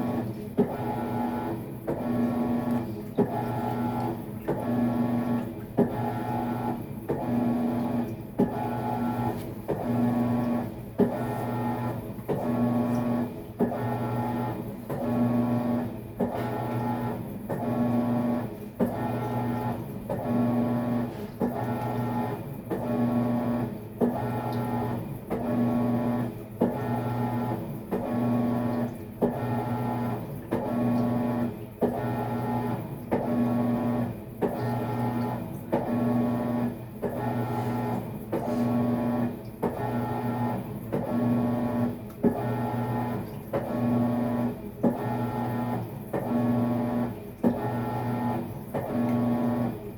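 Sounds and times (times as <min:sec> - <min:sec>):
washing machine motor humming: 0:00.0 - 0:49.9.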